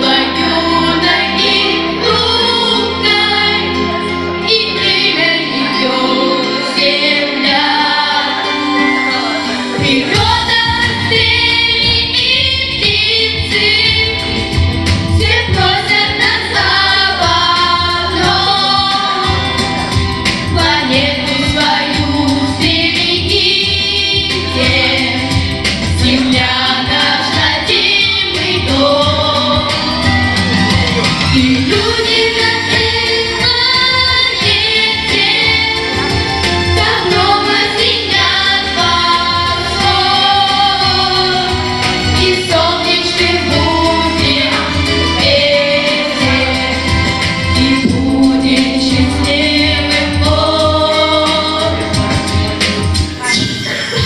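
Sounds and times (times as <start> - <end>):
bass line: 0.0 - 54.0
instrumental accompaniment: 0.0 - 54.0
vocal group singing: 0.0 - 54.0.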